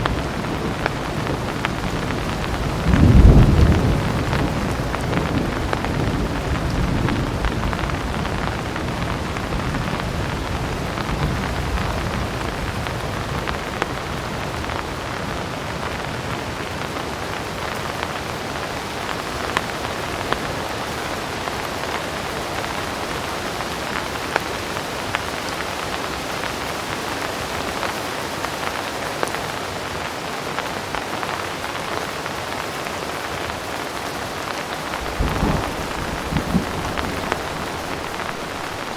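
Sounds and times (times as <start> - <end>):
distant thunder rumble: 0.0 - 13.6, 34.9 - 38.9
heavy rain: 0.0 - 38.9.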